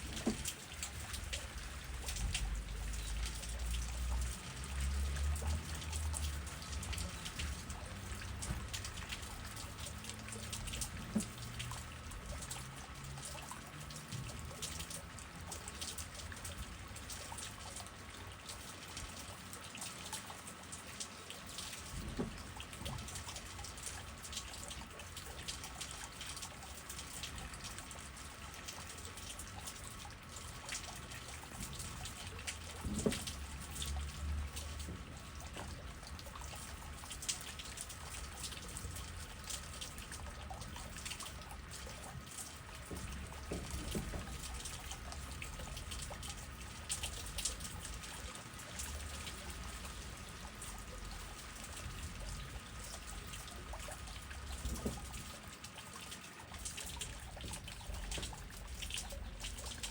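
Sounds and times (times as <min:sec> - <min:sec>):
rain pattering and dripping: 0:00.0 - 0:59.9.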